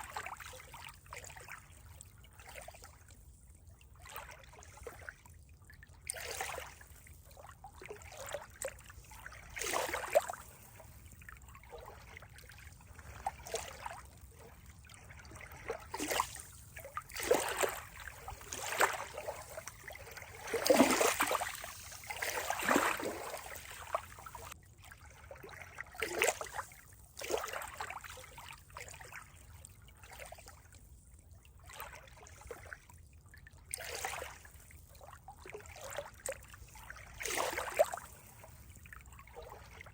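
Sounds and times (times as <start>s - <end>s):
water trickling and gurgling: 0.0s - 39.9s.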